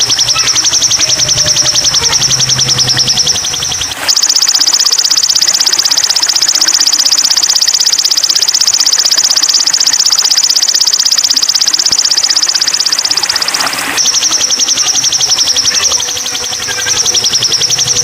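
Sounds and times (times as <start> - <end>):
songbird fast high trill: 0.0 - 8.0.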